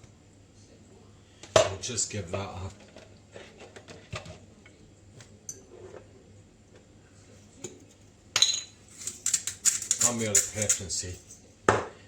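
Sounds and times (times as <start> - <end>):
kitchenware clicking and tapping: 8.4 - 12.0.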